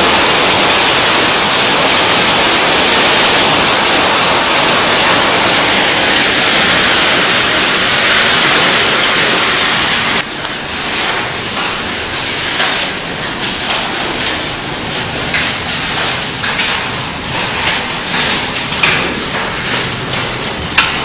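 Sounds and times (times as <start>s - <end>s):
hail and heavy rain pounding: 0.0s - 21.0s.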